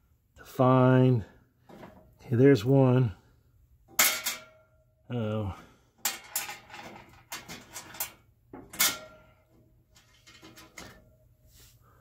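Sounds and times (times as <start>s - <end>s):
clicks and clattering knocks: 6.0s - 9.3s.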